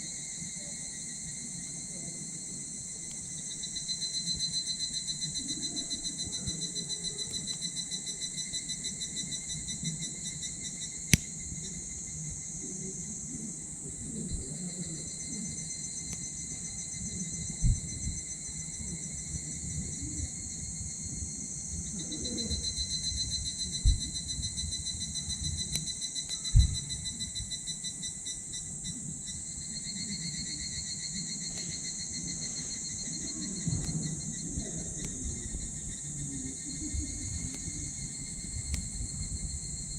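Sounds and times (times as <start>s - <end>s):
insects chirping: 0.0s - 39.9s
wood fire crackling and popping: 37.3s - 39.3s.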